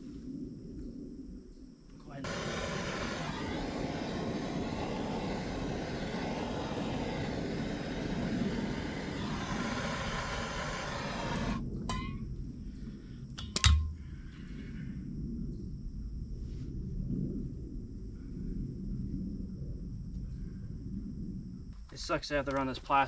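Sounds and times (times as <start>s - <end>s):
water rushing from a pipe: 2.2s - 11.6s.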